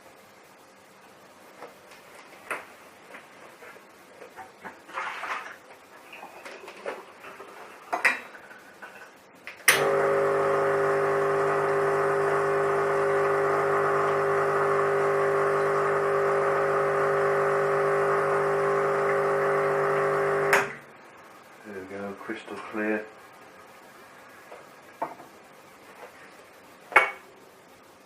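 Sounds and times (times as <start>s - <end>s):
espresso machine pump humming: 9.8s - 20.8s.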